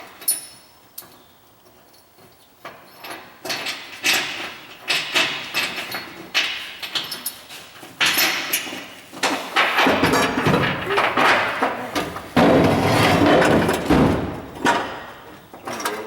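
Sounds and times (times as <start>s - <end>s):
knocks and scrapes on car body: 8.0s - 14.9s.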